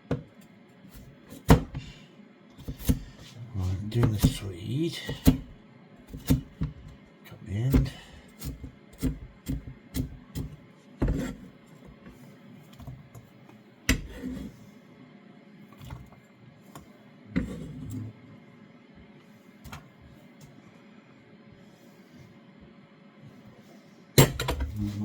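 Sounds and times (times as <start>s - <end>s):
knife chopping onto board: 2.6s - 3.1s.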